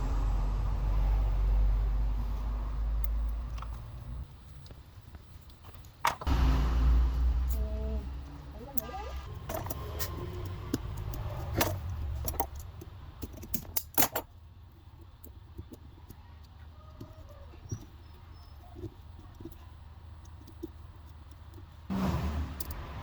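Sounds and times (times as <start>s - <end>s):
loud low noise: 0.0s - 3.0s, 6.3s - 8.6s
low background rumble: 0.0s - 5.6s, 6.3s - 13.8s
metal parts clinking: 8.6s - 14.4s.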